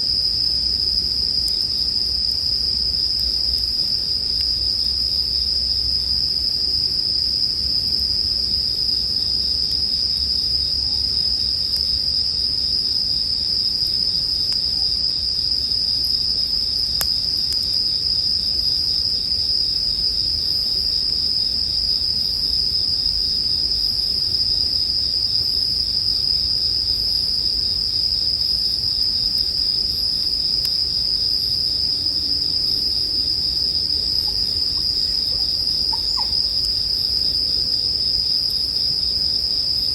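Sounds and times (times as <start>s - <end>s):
crickets ringing chorus: 0.1s - 39.9s.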